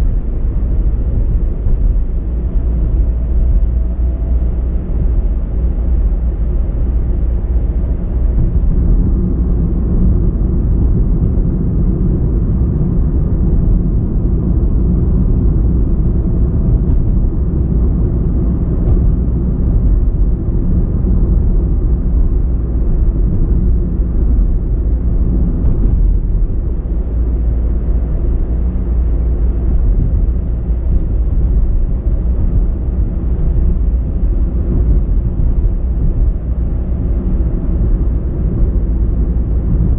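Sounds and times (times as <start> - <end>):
car engine rumble: 0.0 - 39.9
tyre road noise: 0.0 - 39.9.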